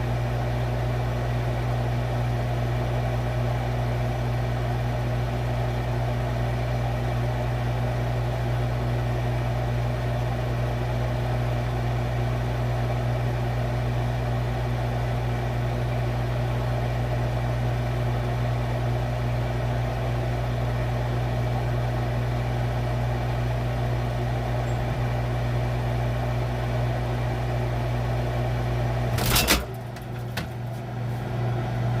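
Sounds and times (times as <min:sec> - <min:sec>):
refrigerator humming: 0:00.0 - 0:32.0
sudden clatter: 0:29.1 - 0:30.8.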